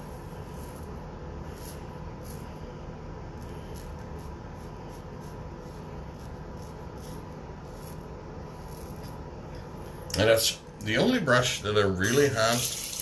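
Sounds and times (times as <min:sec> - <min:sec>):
razor scraping stubble: 0:00.0 - 0:02.7, 0:03.3 - 0:09.3, 0:11.9 - 0:13.0
low room hum: 0:00.0 - 0:13.0.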